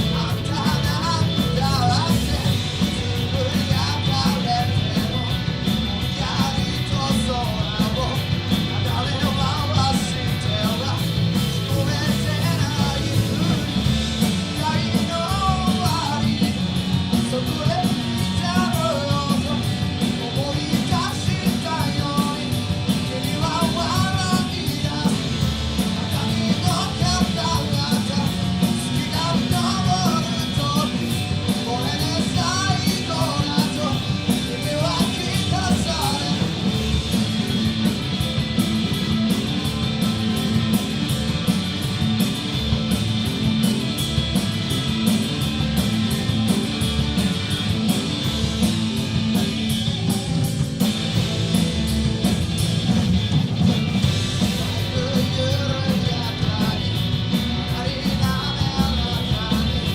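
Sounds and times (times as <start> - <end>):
person singing lead vocal: 0.0 - 37.2, 54.0 - 59.9
live punk rock band: 0.0 - 59.9.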